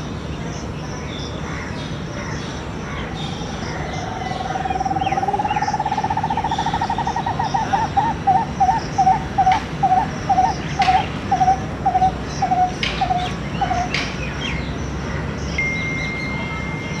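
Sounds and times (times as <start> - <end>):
squirrel chattering and chirping: 4.0 - 14.4.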